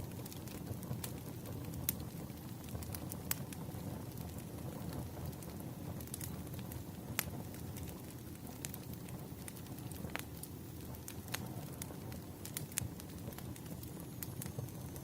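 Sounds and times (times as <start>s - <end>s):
firewood crackling and popping: 0.0s - 15.0s.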